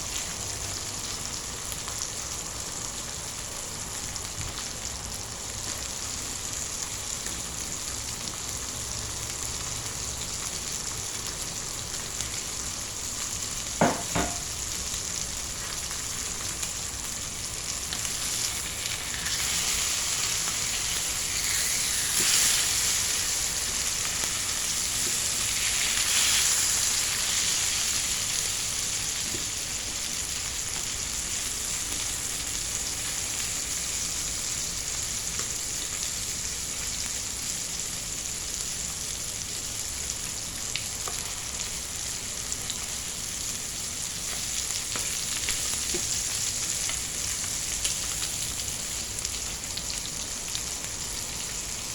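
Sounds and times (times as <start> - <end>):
meat sizzling in a pan: 0.0 - 51.9
sharp knocks: 13.8 - 14.4.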